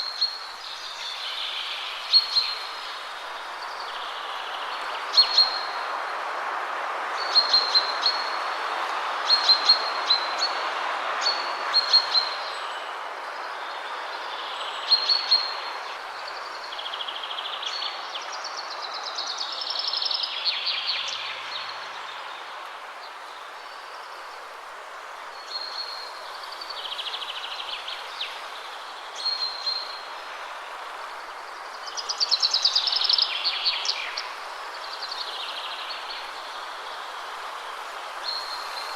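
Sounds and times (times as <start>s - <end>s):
wind rushing through trees: 0.0s - 38.9s
songbird chirps: 25.1s - 38.9s.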